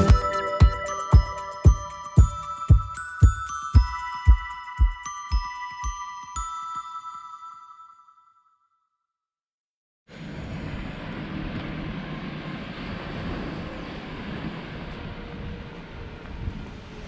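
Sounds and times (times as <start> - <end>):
vehicle rumble: 10.2 - 17.0.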